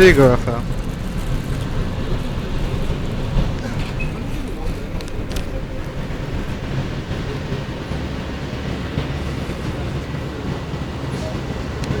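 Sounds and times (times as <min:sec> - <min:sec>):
transit vehicle rumble inside cabin: 0:00.0 - 0:12.0.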